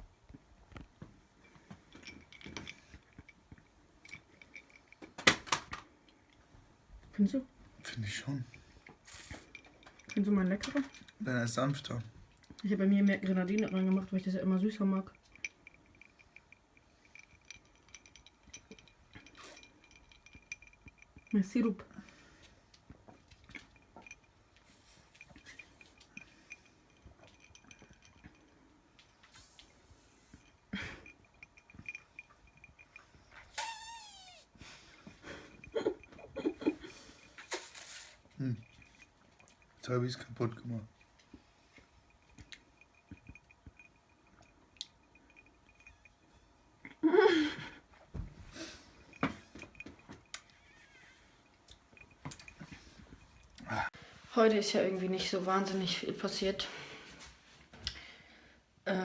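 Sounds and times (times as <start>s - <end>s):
glasses clinking: 1.4s - 5.1s, 7.8s - 12.1s, 12.7s - 22.3s, 22.9s - 53.7s
glasses clattering: 1.4s - 5.7s, 7.8s - 12.0s, 13.0s - 22.3s, 23.0s - 34.4s, 35.0s - 46.9s, 48.0s - 53.6s.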